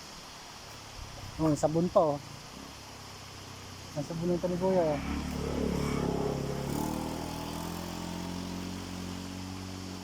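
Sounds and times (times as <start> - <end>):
motor engine running: 4.6 - 10.0.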